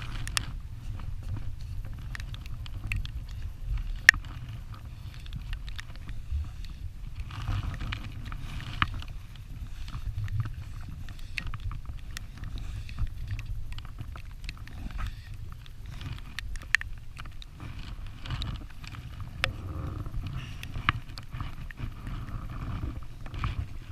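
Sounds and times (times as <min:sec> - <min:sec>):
small clicks and knocks: 0:00.0 - 0:23.9
wind rumbling on microphone: 0:00.0 - 0:23.9.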